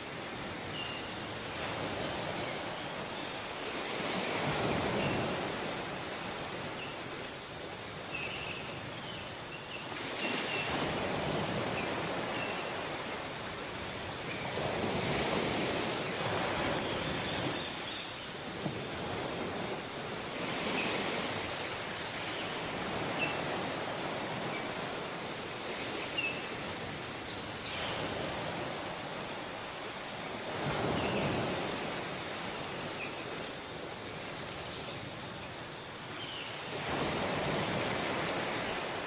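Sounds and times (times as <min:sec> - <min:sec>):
sea waves washing onto beach: 0:00.0 - 0:08.1, 0:08.7 - 0:26.9, 0:35.6 - 0:39.0.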